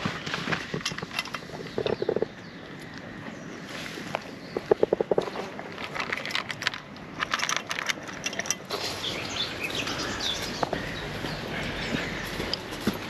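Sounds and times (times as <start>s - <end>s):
small birds chirping: 0.0s - 5.8s, 8.6s - 13.0s.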